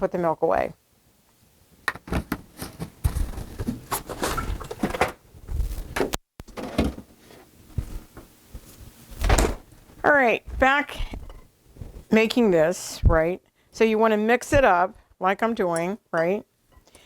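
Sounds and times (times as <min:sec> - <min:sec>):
rustling: 0:02.1 - 0:12.2
door opening and shutting: 0:09.2 - 0:09.7
knocks and thuds: 0:09.2 - 0:09.7.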